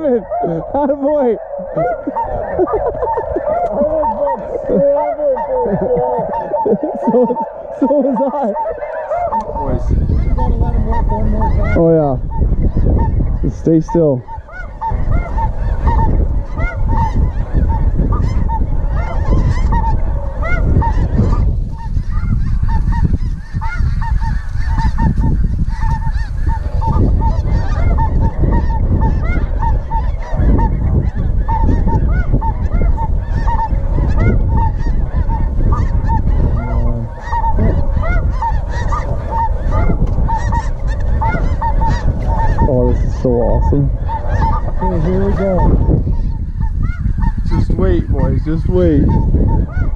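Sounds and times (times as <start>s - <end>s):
geese honking: 0.0s - 49.9s
wind buffeting microphone: 0.0s - 49.9s.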